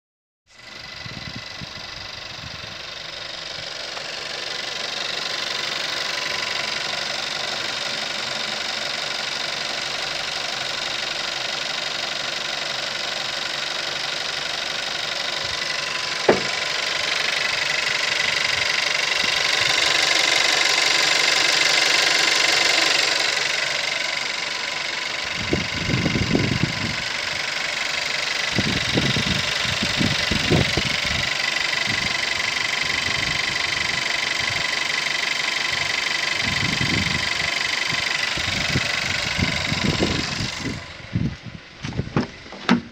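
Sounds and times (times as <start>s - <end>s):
car engine idling: 0.5s - 42.9s
sharp click: 16.2s - 16.6s
low rumbling thuds: 16.3s - 16.6s, 41.2s - 42.9s.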